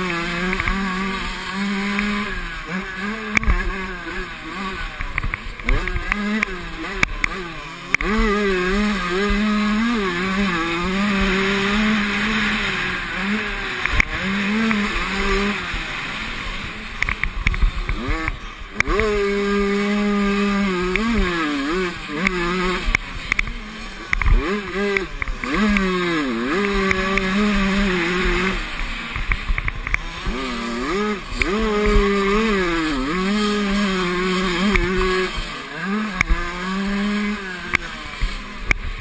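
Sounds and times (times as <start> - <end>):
sharp clicks: 0.0 - 1.2, 3.3 - 3.7, 13.8 - 15.3, 17.0 - 19.1, 22.2 - 25.9, 28.2 - 30.4, 34.7 - 35.4, 36.1 - 36.4
motocross bikes revving: 0.0 - 39.0.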